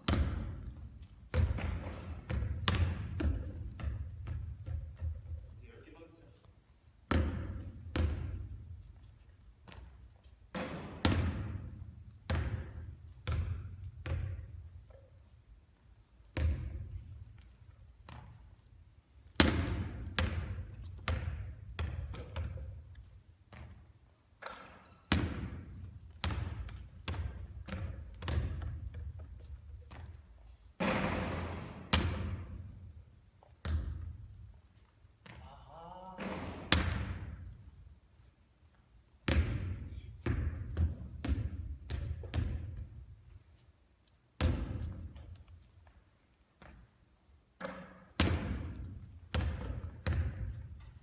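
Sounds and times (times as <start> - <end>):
basketballs bouncing on hard court: 0.0 - 5.6, 7.0 - 15.1, 16.2 - 18.6, 19.3 - 34.6, 35.2 - 37.8, 39.2 - 43.3, 44.4 - 46.0, 47.6 - 51.0.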